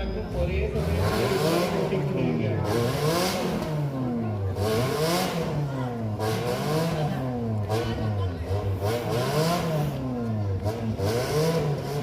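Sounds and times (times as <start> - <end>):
off-road engine revving: 0.0 - 12.0.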